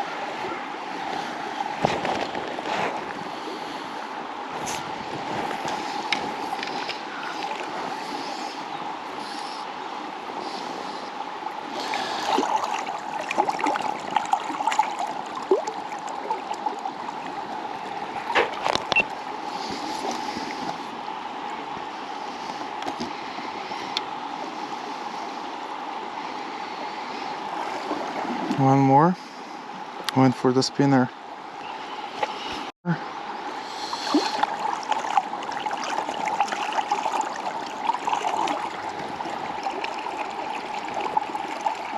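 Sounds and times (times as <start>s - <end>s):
river water rushing: 0.0s - 30.1s, 33.0s - 41.9s.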